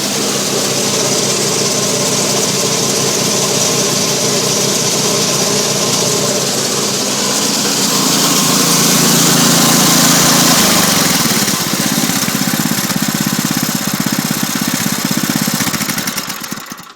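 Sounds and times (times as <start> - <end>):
snowblower engine running: 0.0 - 16.9.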